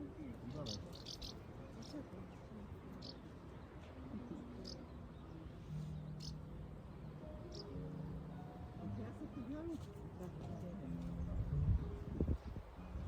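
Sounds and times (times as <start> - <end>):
small bird chirping: 0.5 - 2.0, 5.8 - 6.5, 7.5 - 7.8.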